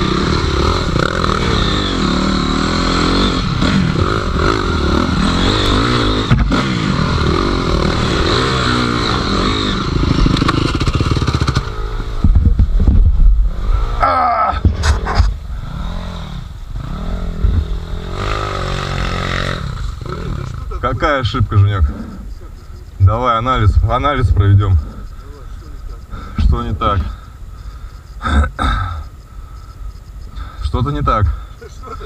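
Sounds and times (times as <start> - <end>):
dirt bike engine revving: 0.0 - 32.0
knocks and clatter: 5.5 - 6.7, 10.1 - 13.4.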